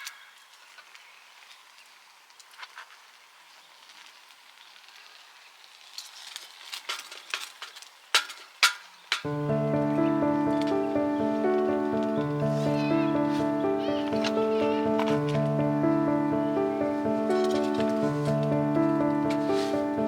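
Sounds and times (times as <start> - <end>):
fire hissing: 0.0 - 20.0
small crackles and clicks: 0.0 - 20.0
background music: 9.3 - 20.0.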